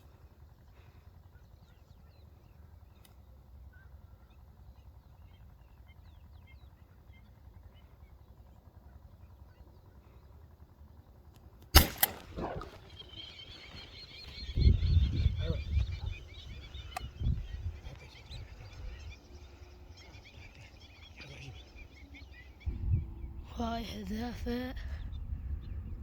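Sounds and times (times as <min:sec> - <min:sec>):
low outdoor rumble: 0:00.0 - 0:26.0
gunshots: 0:11.8 - 0:12.9
birds calling rapidly: 0:11.8 - 0:26.0
faint bird chirps: 0:11.8 - 0:26.0.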